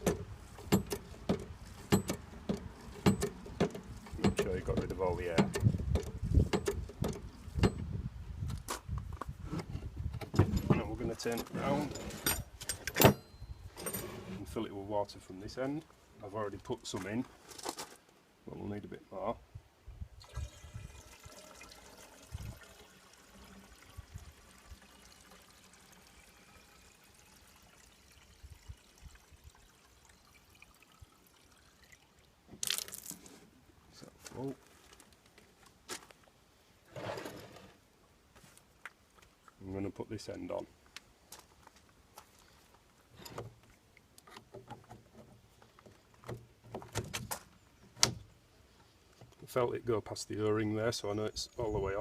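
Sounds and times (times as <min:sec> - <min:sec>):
metal fitting knocks and scrapes: 0:00.0 - 0:07.9
water trickling into pipe: 0:20.2 - 0:33.2.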